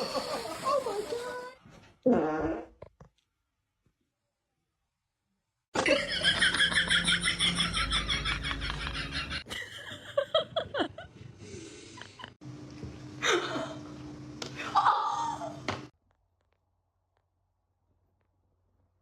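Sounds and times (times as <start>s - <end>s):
person laughing in bursts: 5.8s - 11.1s.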